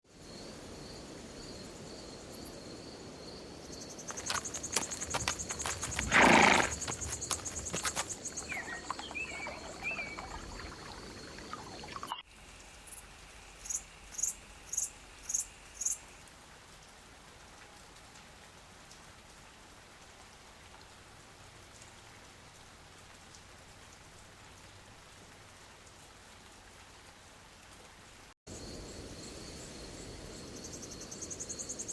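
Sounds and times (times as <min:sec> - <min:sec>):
steady hiss of night woods: 0:00.1 - 0:31.9
insects trilling: 0:03.7 - 0:11.9.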